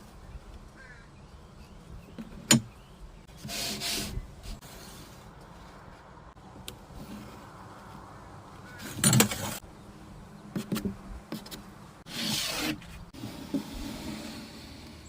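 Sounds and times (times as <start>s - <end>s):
scraping rub: 3.3s - 5.2s, 10.6s - 15.0s
wood and tools clattering: 8.8s - 9.6s.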